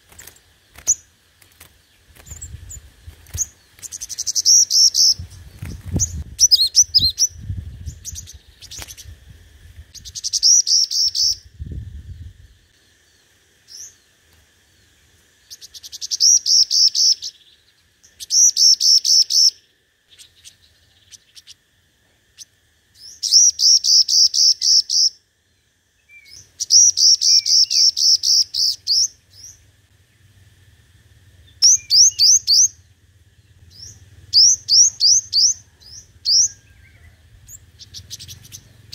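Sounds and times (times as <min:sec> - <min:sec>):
bird chirping rapidly: 0:01.9 - 0:09.2, 0:09.9 - 0:12.2, 0:15.4 - 0:21.6, 0:22.4 - 0:25.2, 0:26.2 - 0:30.2, 0:31.4 - 0:38.9.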